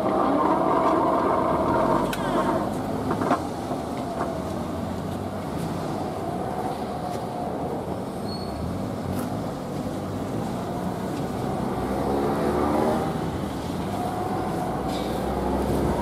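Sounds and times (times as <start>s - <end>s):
electric train running: 0.0s - 3.3s.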